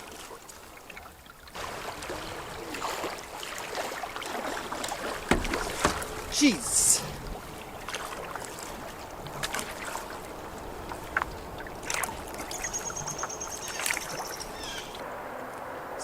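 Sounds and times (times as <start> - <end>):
paddle splashing in water: 0.0 - 16.0
light knocks: 5.2 - 6.2.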